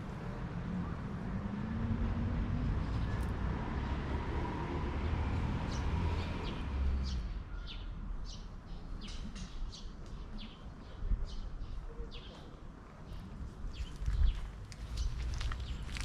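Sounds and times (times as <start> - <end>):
small birds chirping: 5.7 - 16.0.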